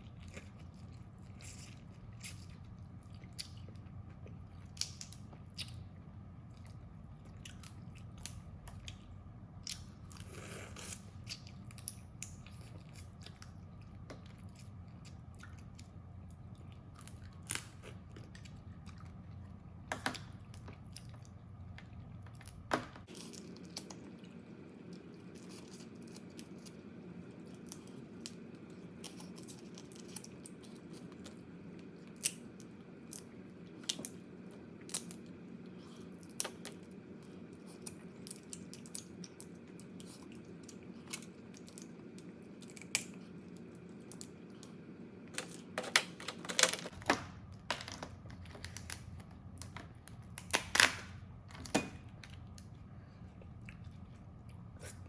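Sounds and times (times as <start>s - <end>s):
tearing and chewing: 0.0s - 5.9s
steady low hum: 0.0s - 55.0s.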